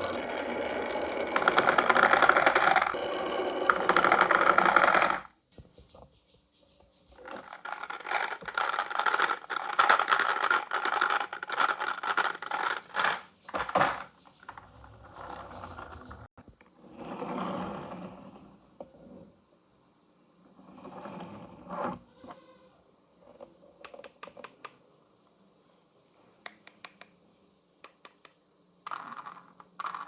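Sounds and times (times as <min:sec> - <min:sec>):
marbles rattling down wooden run: 0:00.0 - 0:05.3, 0:07.2 - 0:13.2.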